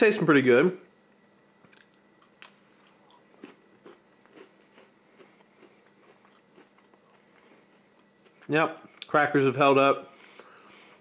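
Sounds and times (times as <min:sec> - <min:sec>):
person chewing: 0:01.6 - 0:09.1.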